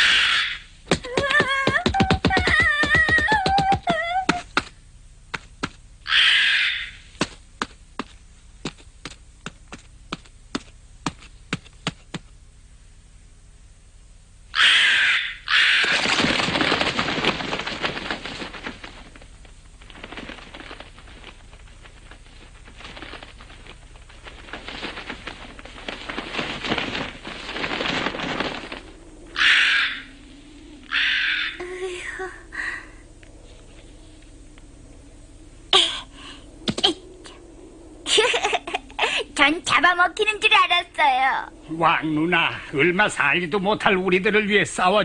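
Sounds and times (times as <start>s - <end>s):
loud shriek: 6.1s - 7.0s, 14.6s - 16.0s, 29.4s - 30.1s, 30.8s - 31.6s
noisy cartoon scuffle: 15.6s - 30.2s.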